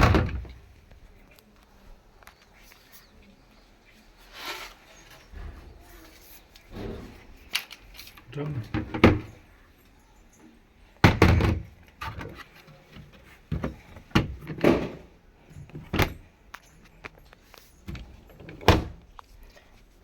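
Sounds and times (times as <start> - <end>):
washing machine parts knocking: 0.0 - 0.6, 8.6 - 9.4, 11.0 - 12.4, 13.0 - 16.2.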